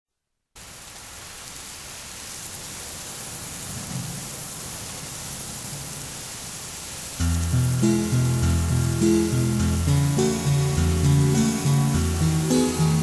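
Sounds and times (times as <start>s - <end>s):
rain falling: 0.6s - 13.0s
thunder rumbling: 3.1s - 12.4s.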